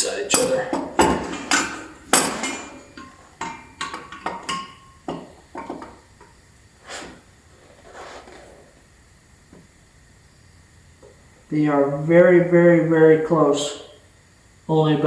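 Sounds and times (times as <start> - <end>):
metal parts clanking: 0.0 - 6.3.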